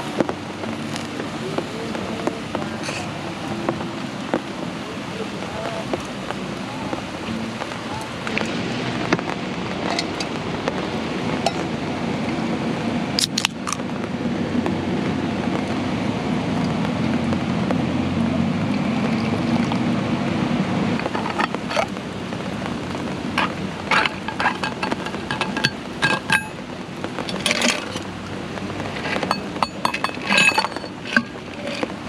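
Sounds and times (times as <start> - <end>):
heavy rain falling: 0.0 - 32.0
metal cups clinking: 9.8 - 10.3, 11.4 - 11.7, 21.0 - 21.9, 23.4 - 26.6, 27.3 - 28.1, 29.0 - 32.0.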